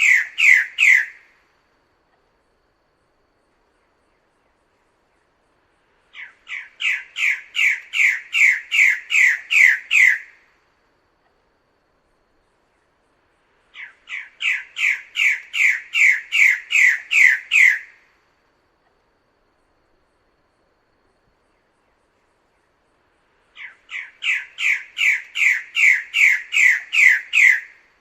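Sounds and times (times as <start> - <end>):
bird calling harsh notes: 0.0 - 1.2, 6.2 - 10.4, 13.8 - 18.0, 23.6 - 27.8.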